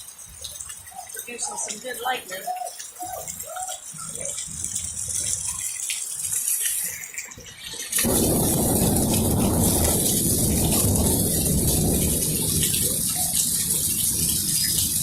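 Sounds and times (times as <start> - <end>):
heavy rain rushing: 0.0 - 15.0
low thunder rumble: 8.0 - 15.0.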